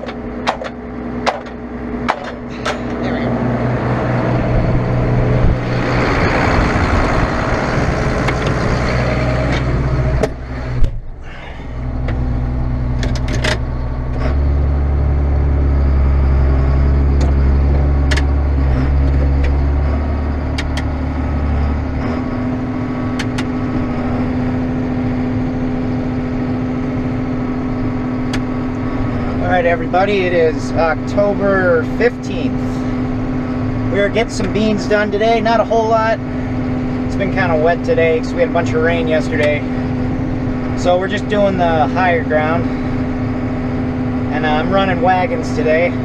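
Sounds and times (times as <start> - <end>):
machinery engine droning: 0.0 - 46.0.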